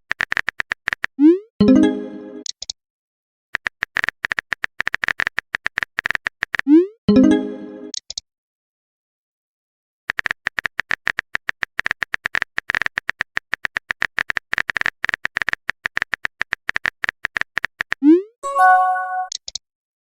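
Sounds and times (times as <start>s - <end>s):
keyboard typing clicks: 10.1s - 18.0s, 18.6s - 19.6s.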